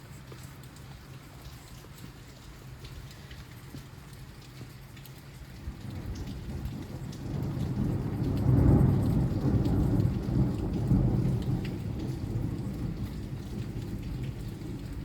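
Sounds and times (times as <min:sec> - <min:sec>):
raindrop ticks: 0:00.0 - 0:15.0
steady rain: 0:00.0 - 0:15.0
thunder rumbling: 0:06.0 - 0:15.0.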